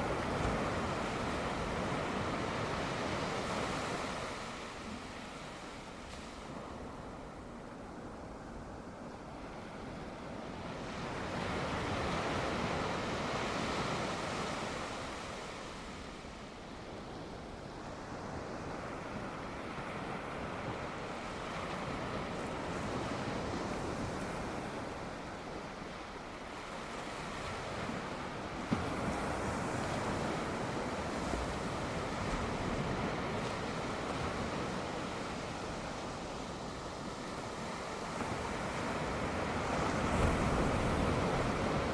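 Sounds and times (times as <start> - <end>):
ocean surf washing onto shore: 17.8 - 41.9.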